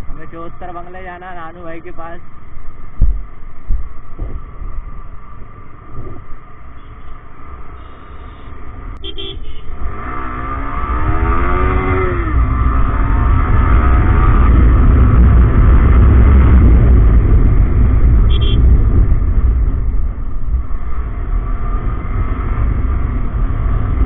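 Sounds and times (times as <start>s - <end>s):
wind and road rumble: 0.0s - 24.0s
motorcycle engine revving: 7.6s - 24.0s
short high beep: 7.8s - 9.4s.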